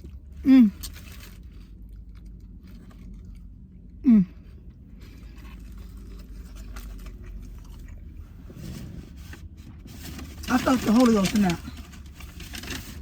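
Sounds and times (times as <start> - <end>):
person chewing: 0.0 - 8.4.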